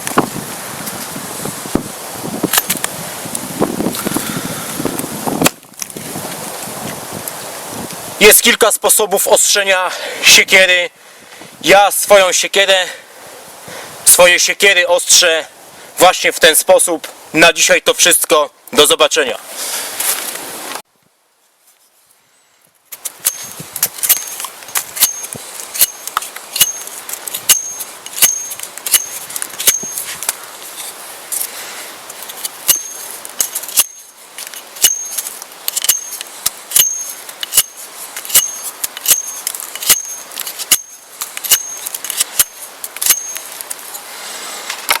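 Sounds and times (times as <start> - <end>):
sharp metallic strikes ringing: 26.6 - 26.9, 27.5 - 30.0, 32.7 - 33.1, 34.8 - 35.2, 36.8 - 41.8, 42.4 - 43.5.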